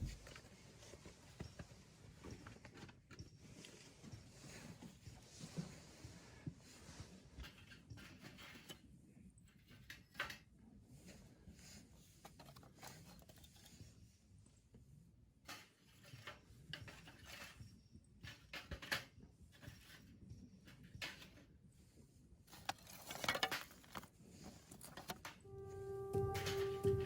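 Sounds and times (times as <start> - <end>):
light handling rustles: 22.4 - 25.4.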